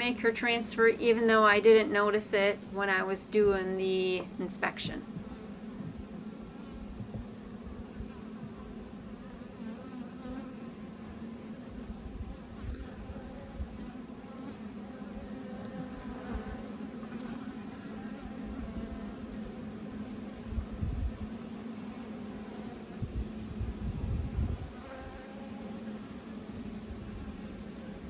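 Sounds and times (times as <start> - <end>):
bees buzzing: 0.0 - 28.0.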